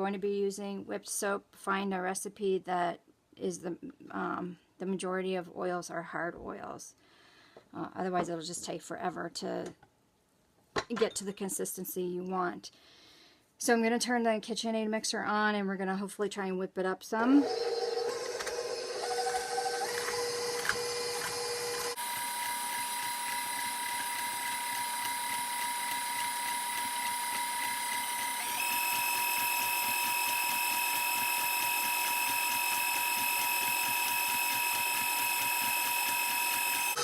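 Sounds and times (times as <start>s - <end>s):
stand mixer motor whine: 17.4s - 37.0s.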